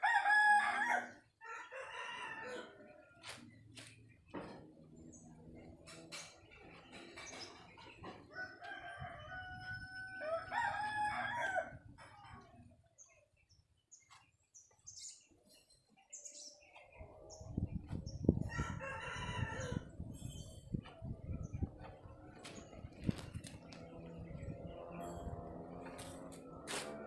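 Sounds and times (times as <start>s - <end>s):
rooster crowing: 0.0s - 2.9s, 8.3s - 11.8s, 18.5s - 19.9s.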